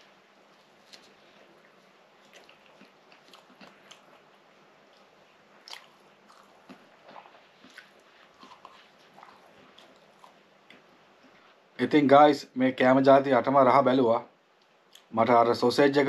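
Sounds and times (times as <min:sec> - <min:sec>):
low hiss: 0:00.0 - 0:16.0
person chewing bread: 0:00.4 - 0:11.7.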